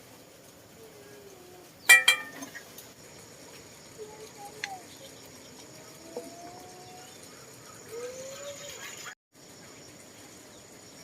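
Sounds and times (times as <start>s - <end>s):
kitchenware clinking: 1.9s - 2.6s.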